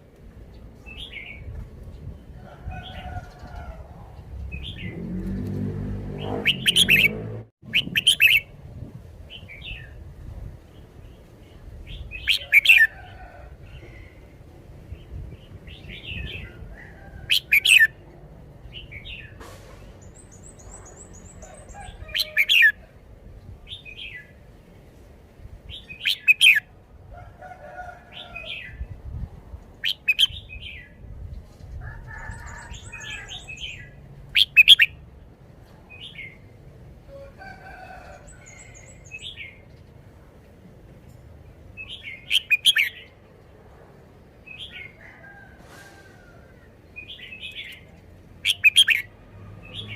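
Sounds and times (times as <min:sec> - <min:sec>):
fast high bird trills: 0:06.3 - 0:08.4
bulbul singing chirpy phrases: 0:06.3 - 0:08.5, 0:48.4 - 0:49.1.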